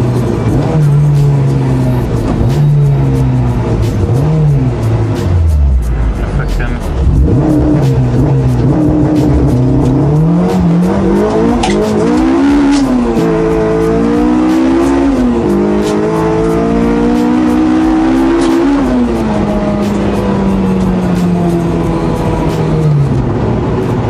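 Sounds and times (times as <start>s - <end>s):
car engine accelerating hard: 0.0s - 24.0s.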